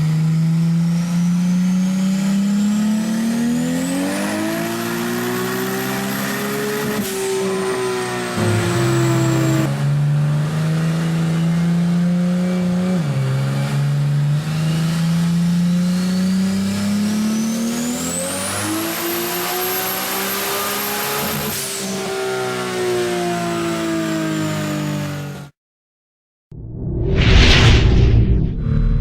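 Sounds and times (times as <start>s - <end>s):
car engine accelerating hard: 0.0s - 25.5s
high turbo whine: 3.2s - 9.8s, 26.6s - 29.0s.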